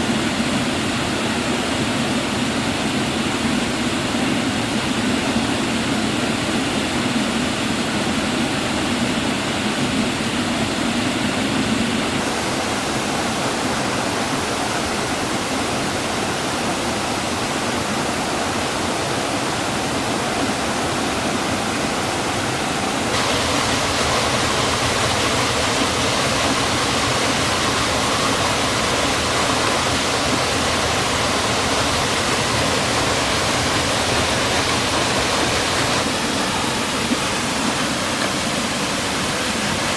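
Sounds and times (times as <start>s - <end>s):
waterfall rushing: 11.8s - 39.9s.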